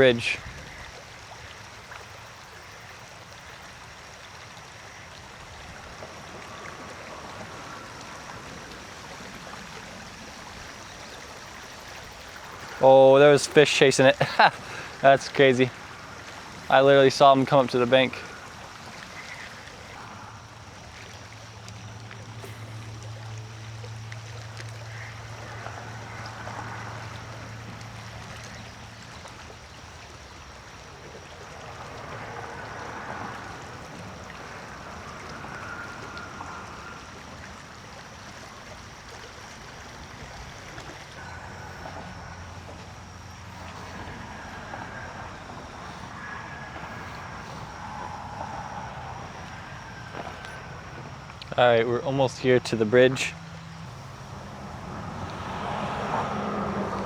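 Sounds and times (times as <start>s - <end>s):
creek water rushing: 0.0s - 57.0s.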